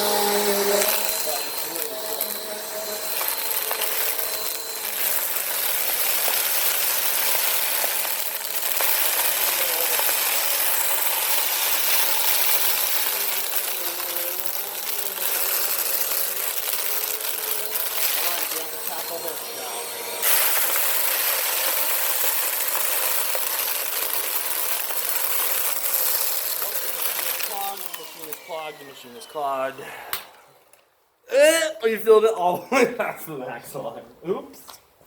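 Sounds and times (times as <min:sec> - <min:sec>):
grit rattling through vacuum: 0:00.0 - 0:29.6
vacuum cleaner running: 0:00.0 - 0:30.7.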